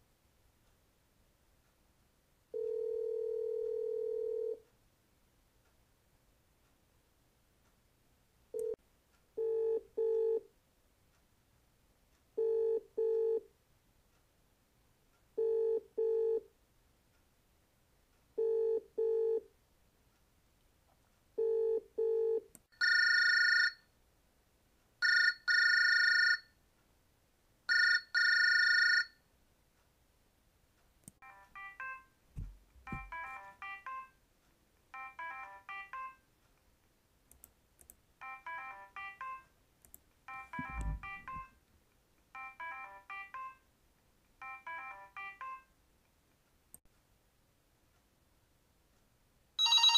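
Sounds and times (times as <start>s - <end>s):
phone ringing: 2.5s - 4.6s, 9.4s - 10.4s, 12.4s - 13.4s, 15.4s - 16.4s, 18.4s - 19.4s, 21.4s - 23.8s, 25.0s - 26.5s, 27.7s - 29.2s, 31.2s - 32.1s, 32.8s - 34.1s, 35.0s - 36.2s, 38.2s - 39.5s, 40.3s - 41.5s, 42.4s - 43.6s, 44.4s - 45.7s, 49.6s - 49.9s
telephone ringback tone: 2.5s - 4.6s, 9.4s - 10.4s, 12.4s - 13.4s, 15.4s - 16.4s, 18.4s - 19.4s, 21.4s - 23.8s, 25.0s - 26.5s, 27.7s - 29.2s, 32.9s - 34.1s, 38.2s - 39.4s, 40.3s - 41.5s, 42.4s - 43.6s, 49.6s - 49.9s
fast electronic ringtone: 40.3s - 41.5s, 49.6s - 49.9s.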